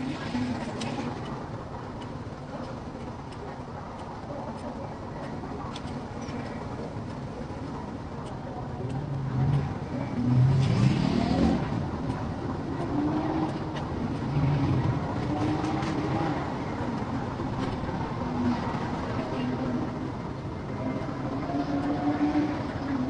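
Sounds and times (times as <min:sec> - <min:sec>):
vehicle engines running: 0:00.0 - 0:23.0
engine revving up: 0:09.3 - 0:11.9.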